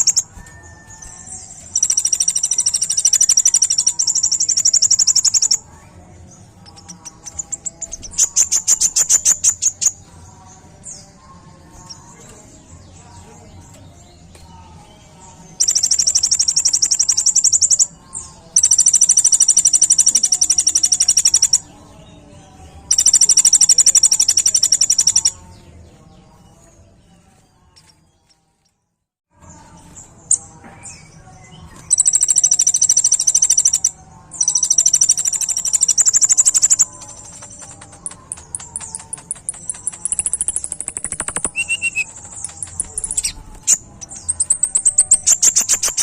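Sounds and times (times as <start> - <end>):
sunbird singing rapid trills: 0.0 - 5.8, 15.5 - 22.2, 22.8 - 25.5, 31.0 - 46.0.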